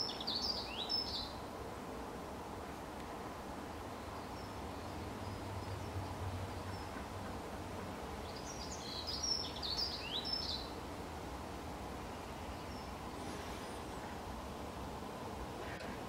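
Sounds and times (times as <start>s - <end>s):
light breeze: 0.0s - 16.0s
small bird chirping: 8.3s - 10.7s.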